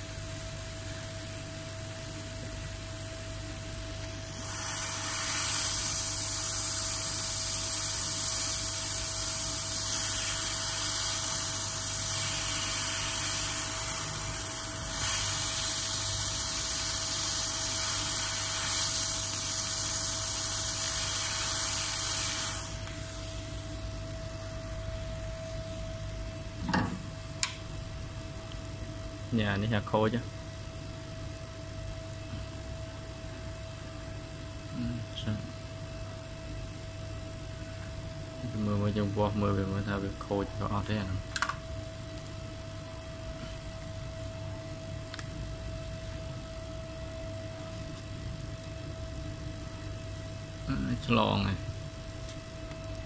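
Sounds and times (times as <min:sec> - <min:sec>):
high-pitched hum: 0:00.0 - 0:31.0
air blower hissing: 0:04.2 - 0:25.7.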